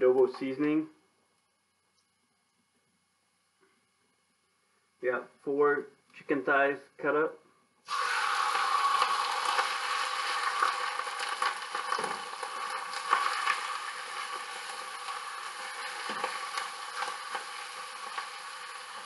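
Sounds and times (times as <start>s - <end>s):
chicken sizzling in hot oil: 7.9s - 19.0s.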